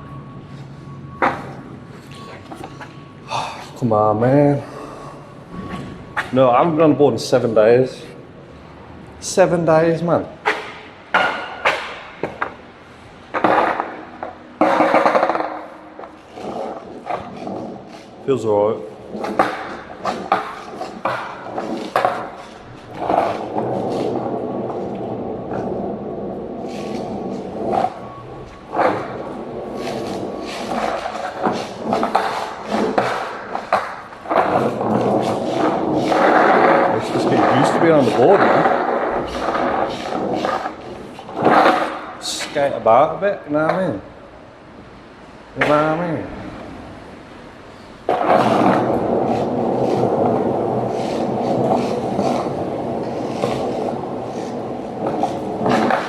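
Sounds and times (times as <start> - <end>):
skateboard rolling on wet pavement: 10.4 - 18.2, 18.9 - 42.6, 46.3 - 56.0
skateboard knocks: 13.3 - 17.7, 19.1 - 25.8, 28.7 - 42.2, 48.1 - 56.0.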